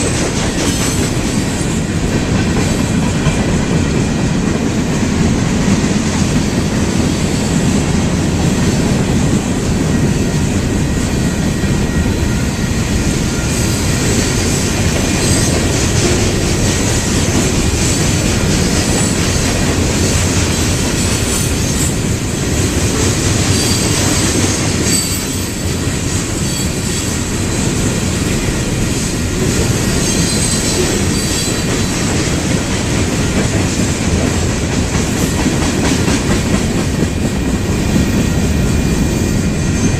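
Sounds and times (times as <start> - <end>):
train wheels rumbling on rail: 0.0 - 39.9
high-pitched wheel squeals: 24.9 - 25.6, 29.9 - 31.7.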